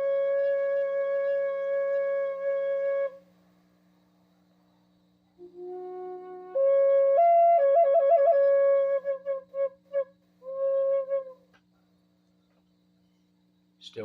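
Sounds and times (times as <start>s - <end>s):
wind instrument played by learner: 0.0s - 3.2s, 5.4s - 11.4s.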